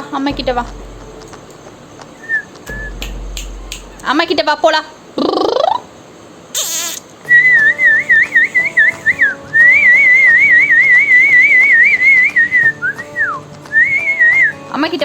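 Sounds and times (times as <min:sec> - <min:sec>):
high warbling whistle: 0:02.2 - 0:04.1, 0:07.3 - 0:14.5
faint steady tones: 0:07.2 - 0:14.7.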